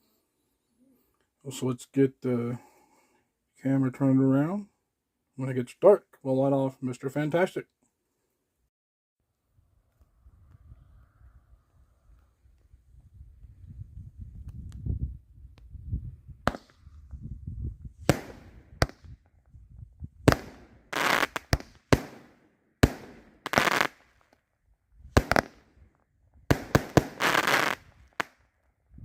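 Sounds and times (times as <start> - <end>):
firework bangs: 18.0 - 19.1, 20.2 - 24.0, 25.2 - 25.6, 26.5 - 28.3
firework crackling: 18.1 - 19.0, 20.3 - 24.2, 25.2 - 25.6, 26.5 - 28.4.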